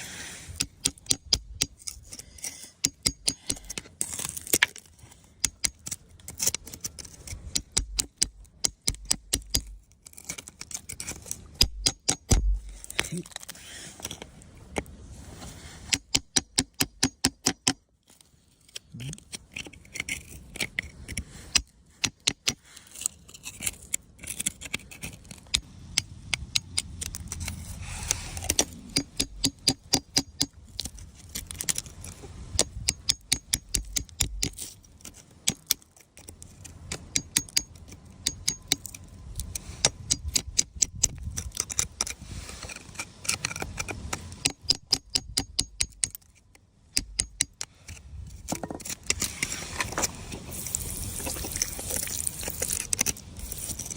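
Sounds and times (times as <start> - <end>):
rock scraping: 0.0 - 16.2, 47.0 - 53.9.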